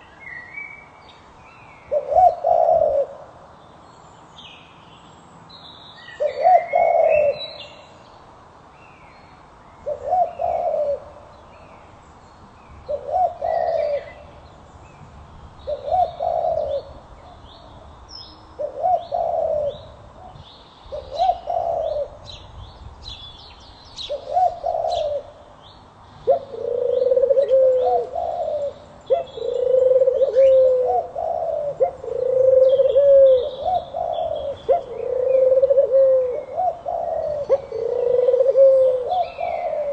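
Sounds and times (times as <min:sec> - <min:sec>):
dove cooing: 0:01.9 - 0:03.3, 0:06.2 - 0:07.6, 0:09.8 - 0:11.2, 0:12.9 - 0:14.3, 0:15.6 - 0:17.4, 0:18.6 - 0:22.3, 0:24.0 - 0:25.4, 0:26.2 - 0:39.9
small birds chirping: 0:03.6 - 0:35.5.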